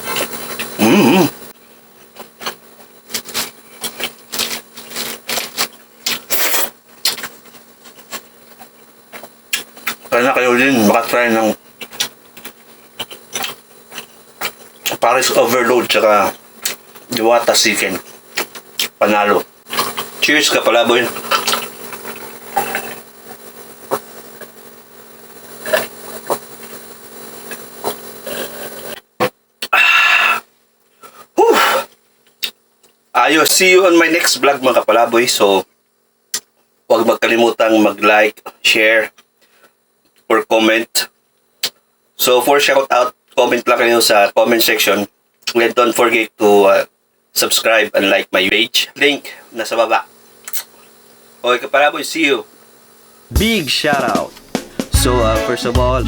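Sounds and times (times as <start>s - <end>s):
clicking and smacking eating sounds: 2.1s - 10.1s, 11.8s - 15.0s, 18.0s - 19.0s, 21.1s - 24.0s
machine hum: 53.3s - 56.0s.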